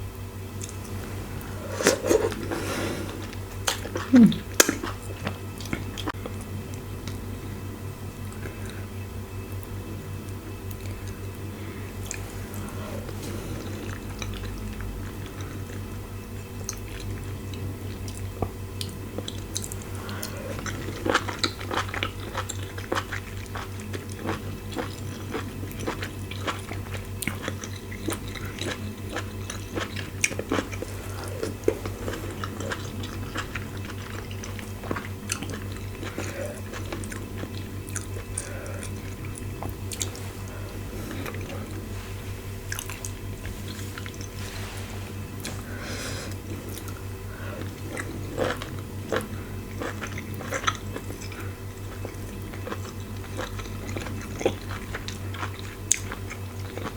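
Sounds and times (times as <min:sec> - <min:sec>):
steady low hum: 0:00.0 - 0:56.9
chewing and mouth smacks: 0:00.6 - 0:07.2, 0:16.5 - 0:41.9, 0:42.7 - 0:44.4, 0:46.3 - 0:56.9.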